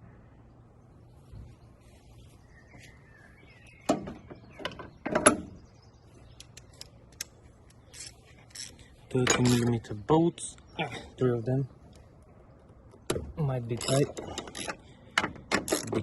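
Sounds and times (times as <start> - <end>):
hand tools and metal parts clicking: 6.4 - 9.8, 13.6 - 16.0.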